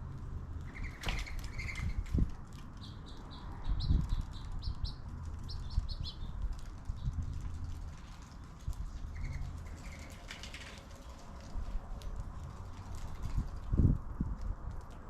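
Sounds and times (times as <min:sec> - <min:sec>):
small birds chirping: 0:00.6 - 0:07.4, 0:08.4 - 0:10.6.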